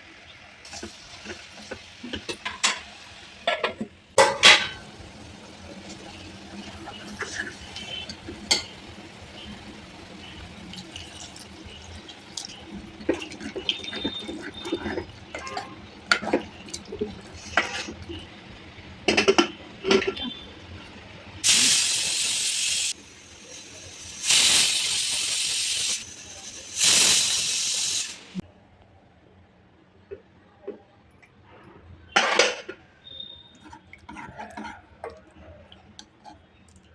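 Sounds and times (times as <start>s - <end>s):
kitchen utensils clinking: 0.7s - 5.0s, 6.8s - 8.9s
rushing hiss bursts: 21.4s - 28.4s.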